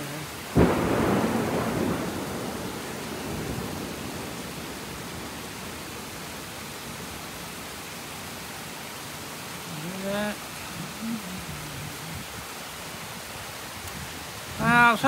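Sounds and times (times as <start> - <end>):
heavy rain falling: 0.0 - 15.0
thunder rumble: 0.5 - 7.4.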